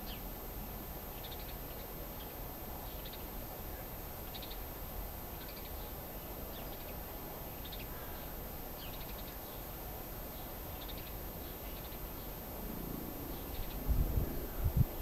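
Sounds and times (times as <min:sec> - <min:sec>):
small bird chirping: 0:10.3 - 0:12.4.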